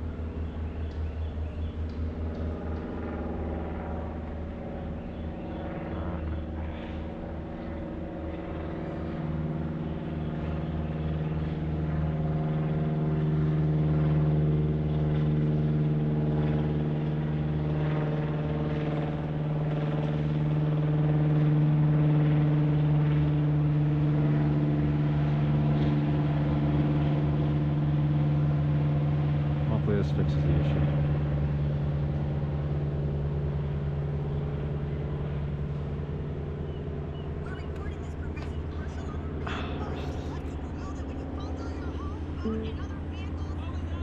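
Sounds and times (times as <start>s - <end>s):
car engine and road noise drone: 0.0s - 2.8s, 31.8s - 44.0s.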